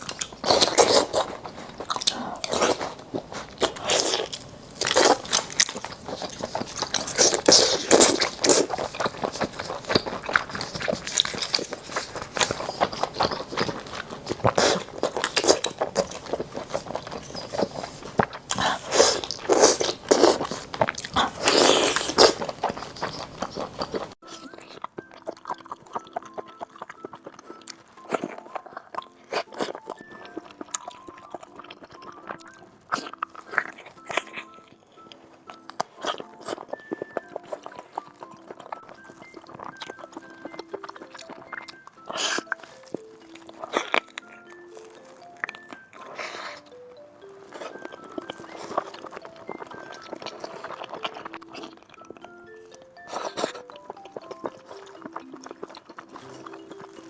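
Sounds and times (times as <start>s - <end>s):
person chewing seafood: 0.0s - 57.0s.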